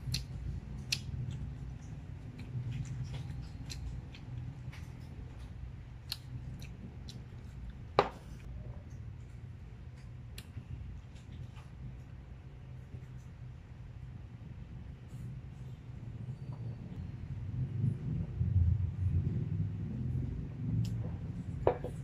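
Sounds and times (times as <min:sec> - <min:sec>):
person chewing food: 0:00.0 - 0:12.2.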